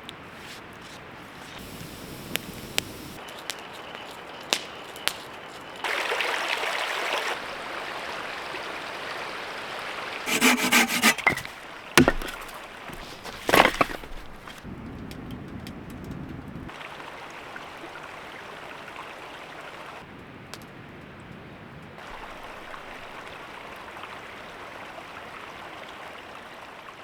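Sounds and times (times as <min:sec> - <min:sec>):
wood knocking on wood: 0:10.3 - 0:14.6
wood rasping: 0:10.3 - 0:14.6.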